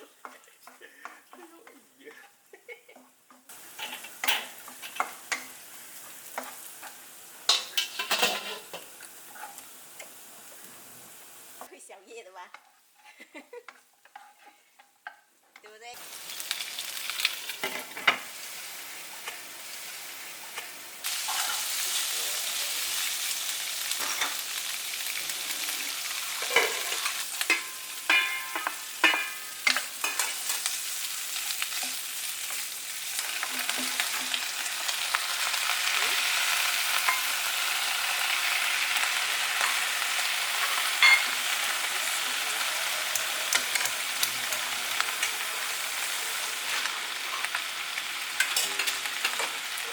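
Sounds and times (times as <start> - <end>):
food sizzling in a pan: 0.0 - 49.9
spatula knocking and scraping pan: 13.7 - 15.2, 26.4 - 30.7.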